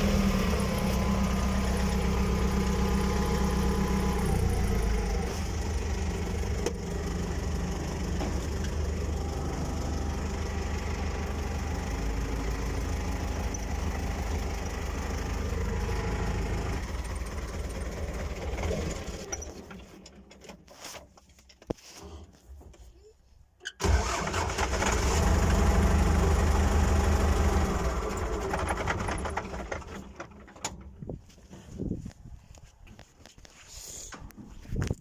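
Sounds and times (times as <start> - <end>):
vehicle engine idling: 0.0 - 19.3.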